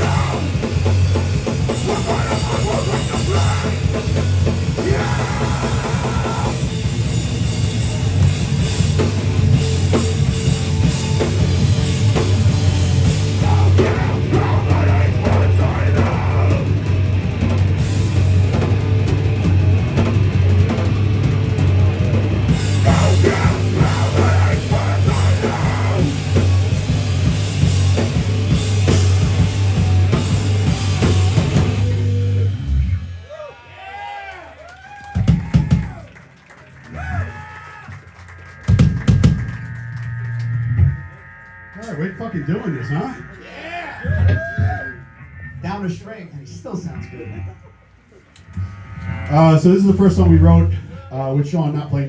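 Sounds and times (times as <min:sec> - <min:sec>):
heavy low bass: 0:00.0 - 0:33.2, 0:38.0 - 0:52.0
distorted guitars: 0:00.0 - 0:33.3, 0:36.6 - 0:52.0
pounding drum kit: 0:00.0 - 0:34.2, 0:34.8 - 0:36.2, 0:37.9 - 0:41.1.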